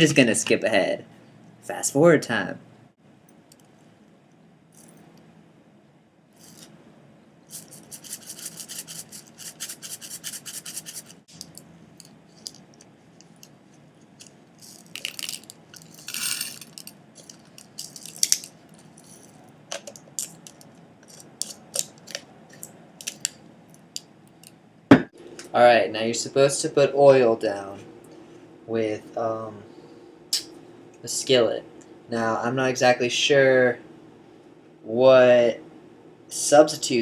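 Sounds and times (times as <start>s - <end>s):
rhythmic scraping: 7.5s - 11.3s.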